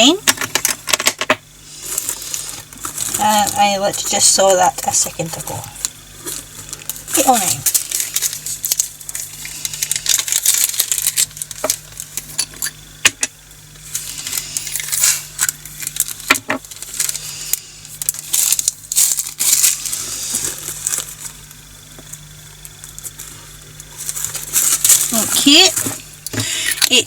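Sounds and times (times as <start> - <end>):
plastic bags crinkling: 1.7 - 12.8, 13.7 - 27.0.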